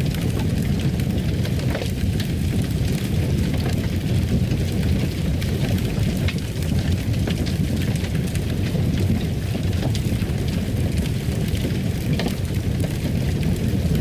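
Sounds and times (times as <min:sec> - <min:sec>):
fire crackling in a fireplace: 0:00.0 - 0:14.0.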